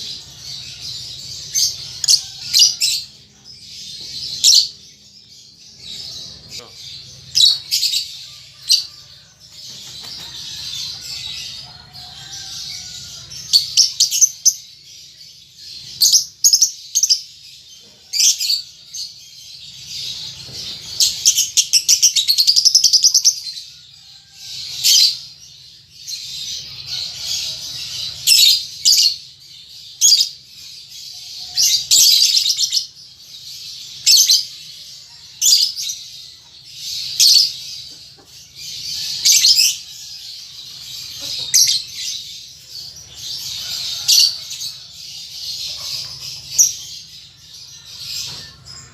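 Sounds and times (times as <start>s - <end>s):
young lovebird chirping: 5.7s - 9.2s.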